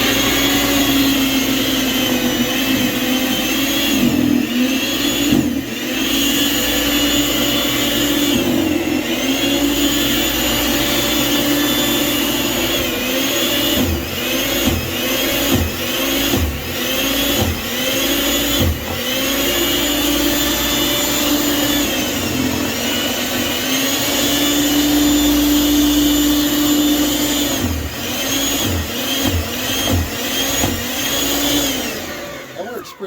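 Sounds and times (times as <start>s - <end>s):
electric snow thrower motor whine: 0.0s - 33.0s.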